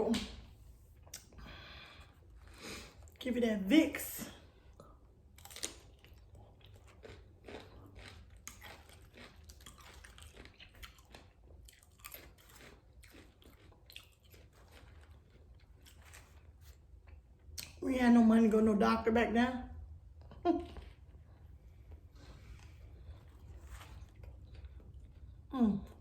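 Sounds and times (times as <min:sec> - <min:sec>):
chewing food crunches: 0:04.6 - 0:17.8, 0:20.8 - 0:25.5.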